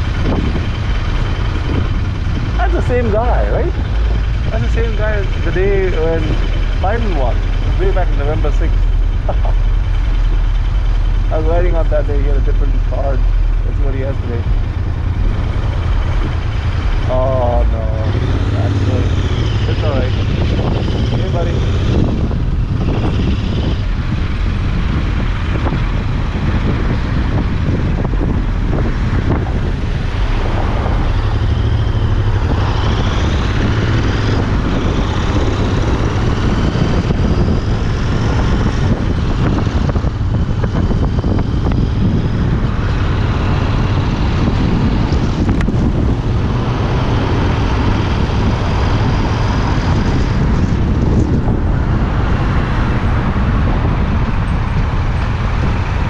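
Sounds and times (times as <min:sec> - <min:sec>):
motorcycle engine running: 0:00.0 - 0:56.0
road traffic: 0:00.0 - 0:56.0
wind noise on microphone: 0:00.0 - 0:56.0.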